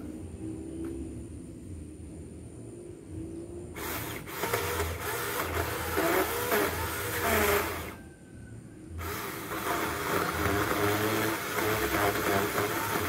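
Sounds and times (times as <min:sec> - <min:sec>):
chainsaw motor whine: 0:03.7 - 0:08.0, 0:09.0 - 0:13.0
chainsaw rasping into wood: 0:03.8 - 0:08.0, 0:09.0 - 0:13.0.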